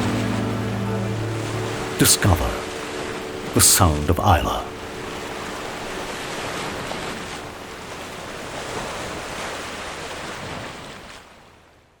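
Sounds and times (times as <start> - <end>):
sea waves washing: 0.0 - 11.1.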